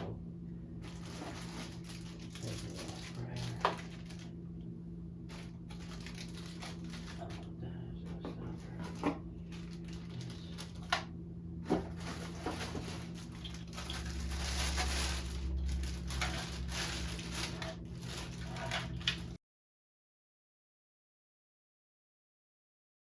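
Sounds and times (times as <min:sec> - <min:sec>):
low hum: 0:00.0 - 0:19.4
packaging rustling: 0:00.8 - 0:04.4, 0:05.3 - 0:07.5, 0:08.7 - 0:11.1, 0:11.7 - 0:19.4.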